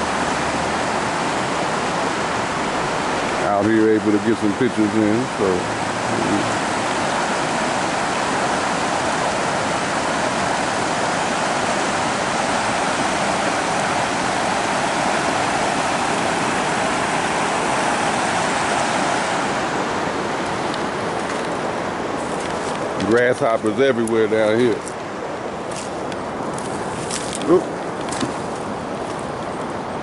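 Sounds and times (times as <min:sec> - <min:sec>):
water rushing over waterfall: 0:00.0 - 0:30.0.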